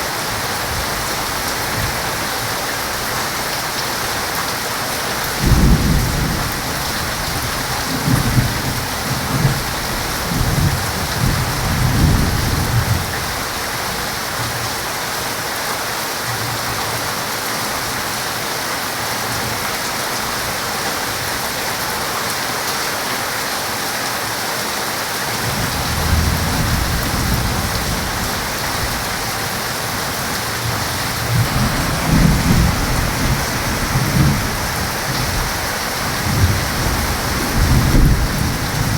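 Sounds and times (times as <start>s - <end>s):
heavy rain falling: 0.0s - 38.9s
thunder rumbling: 5.4s - 13.2s, 25.4s - 38.9s.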